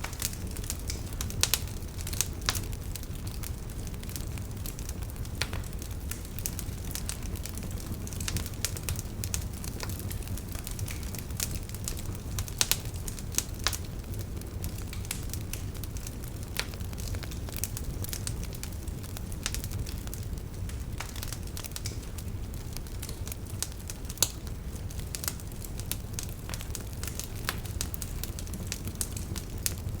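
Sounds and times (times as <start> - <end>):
campfire crackling: 0.0 - 30.0.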